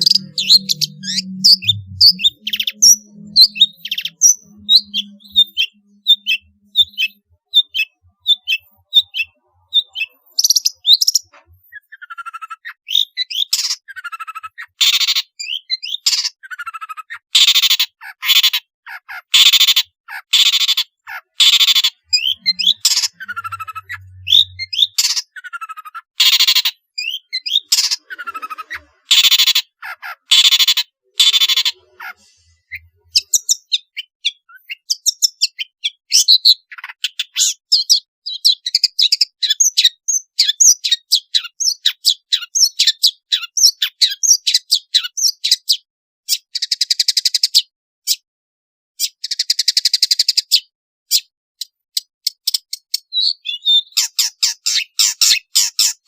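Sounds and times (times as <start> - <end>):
harsh buzzy bird calls: 0.0 - 34.9, 53.1 - 56.0
bird chattering notes: 0.0 - 45.7, 52.6 - 56.0.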